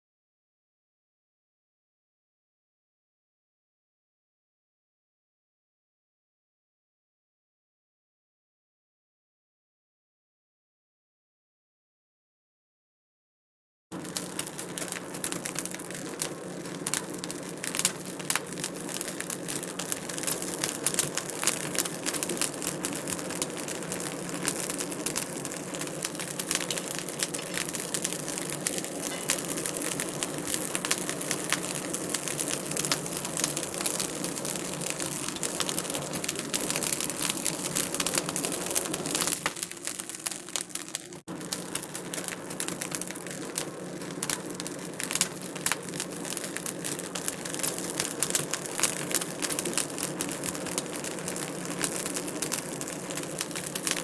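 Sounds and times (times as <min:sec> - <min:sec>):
low steady hum: 0:14.0 - 0:44.6
wood fire crackling: 0:14.0 - 0:54.0.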